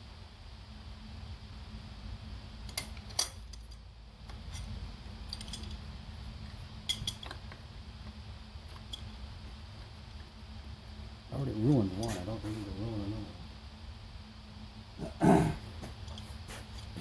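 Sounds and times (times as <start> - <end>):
faint steady hum: 0.0 - 17.0
metal tools clinking: 5.3 - 5.8, 6.9 - 7.4, 16.0 - 17.0.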